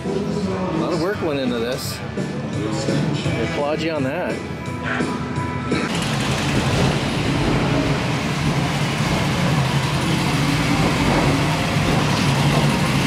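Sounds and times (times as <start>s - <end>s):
car engine running: 5.9s - 13.0s.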